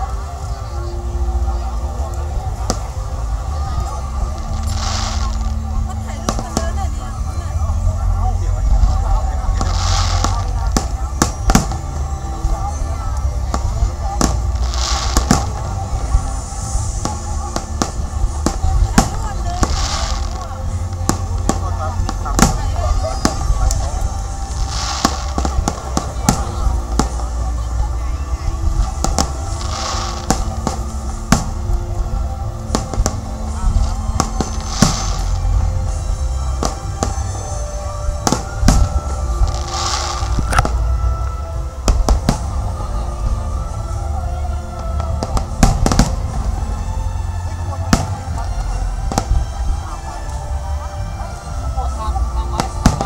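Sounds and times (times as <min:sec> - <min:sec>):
fireworks crackling hiss: 0:00.0 - 0:53.0
music: 0:00.0 - 0:53.0
steady low rumble: 0:00.0 - 0:53.0
fireworks bangs: 0:01.5 - 0:44.1, 0:44.8 - 0:46.7, 0:47.5 - 0:50.4, 0:52.5 - 0:53.0.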